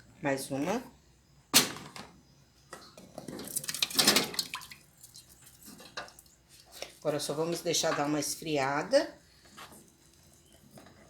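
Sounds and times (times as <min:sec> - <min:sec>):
liquid dripping and splashing: 0:03.4 - 0:07.0.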